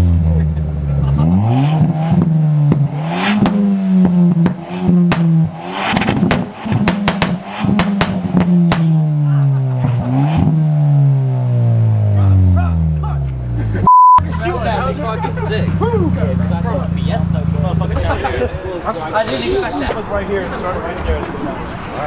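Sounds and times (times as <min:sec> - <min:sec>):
car engine revving hard: 0:00.0 - 0:12.5, 0:14.2 - 0:22.0
sharp exhaust cracks: 0:01.8 - 0:09.2, 0:14.2 - 0:22.0.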